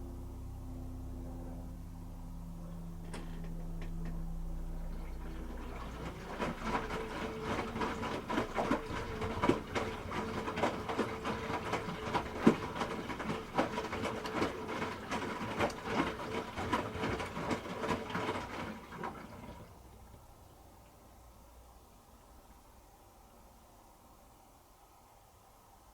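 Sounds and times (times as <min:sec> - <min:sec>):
washing machine motor whine: 0:00.0 - 0:20.4.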